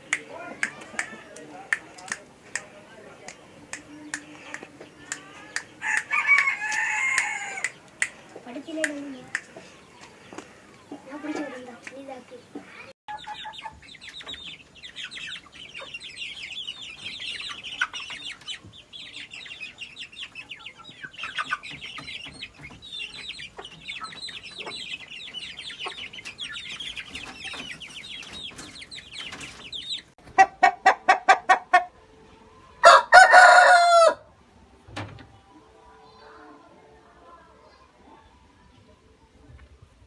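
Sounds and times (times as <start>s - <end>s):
chickens clucking loudly: 0.0s - 12.9s
chickens chattering: 0.0s - 30.0s.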